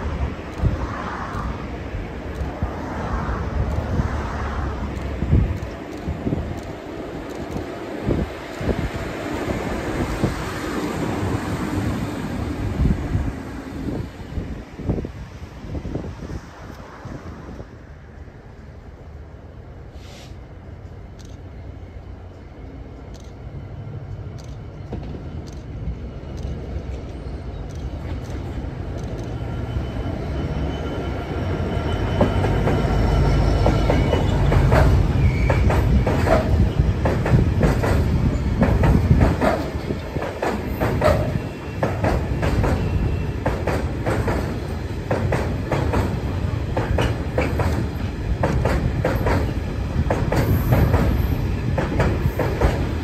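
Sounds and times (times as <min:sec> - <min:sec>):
diesel locomotive passing: 0:00.0 - 0:53.0
wheel squeal: 0:29.3 - 0:36.9.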